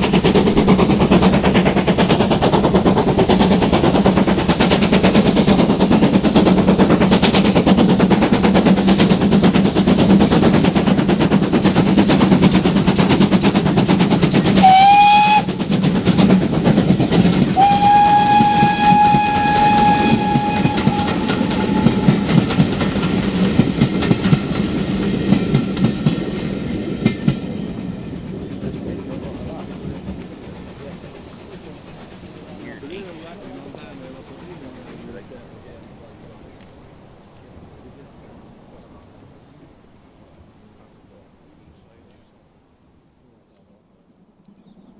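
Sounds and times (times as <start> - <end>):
train wheels clattering: 0.0 - 39.2
steam locomotive whistle: 14.0 - 15.8, 17.5 - 23.4.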